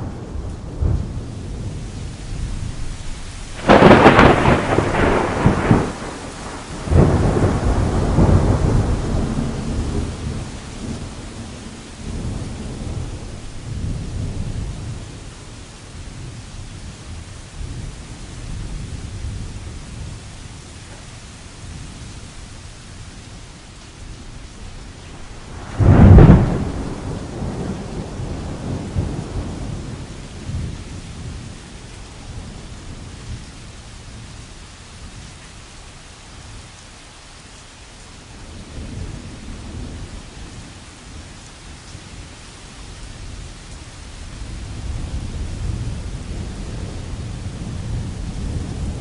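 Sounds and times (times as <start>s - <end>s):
thunder rumbling: 0.0s - 15.2s, 24.1s - 31.5s, 44.4s - 49.0s
rain on canvas: 0.0s - 49.0s.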